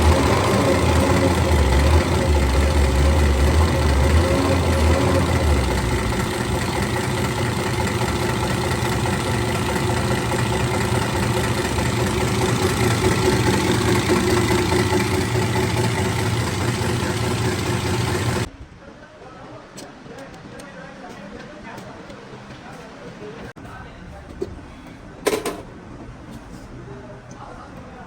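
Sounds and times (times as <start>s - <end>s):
tractor engine idling: 0.0s - 18.5s.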